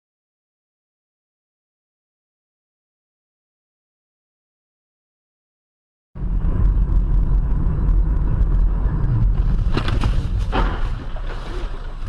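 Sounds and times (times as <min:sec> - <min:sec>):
car road and engine rumble: 0:06.2 - 0:12.0.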